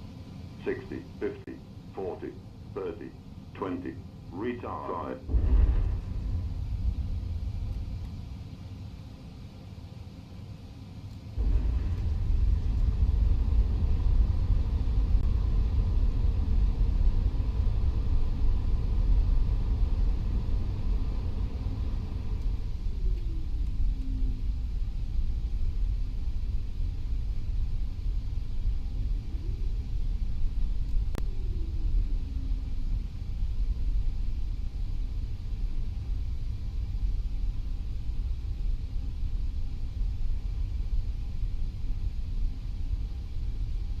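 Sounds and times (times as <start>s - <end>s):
airplane rolling rumble: 0.0s - 44.0s.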